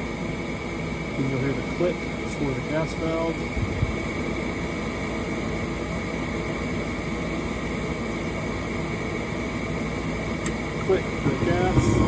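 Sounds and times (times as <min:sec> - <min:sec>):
furnace inducer motor whirring: 0:10.4 - 0:12.0.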